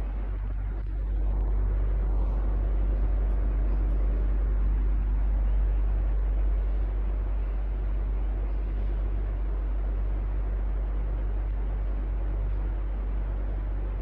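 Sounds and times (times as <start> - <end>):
electric fan running: 0.0 - 14.0.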